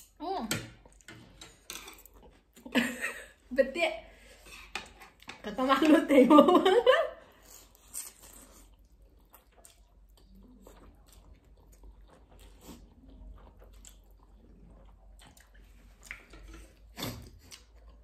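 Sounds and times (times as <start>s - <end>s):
slurping and chewing noodles: 7.3s - 18.0s.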